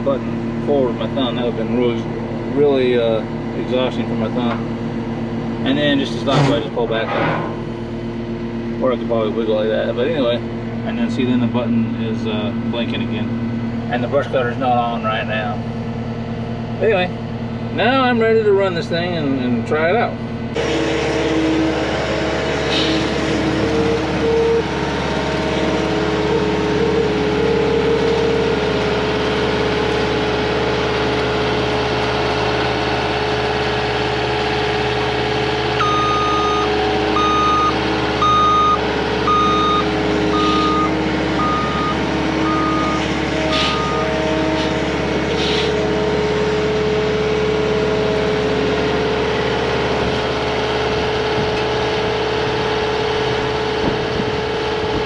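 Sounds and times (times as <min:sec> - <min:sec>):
diesel engine running: 0:00.0 - 0:55.0
backup alarm beeping: 0:20.6 - 0:29.7, 0:35.8 - 0:44.3.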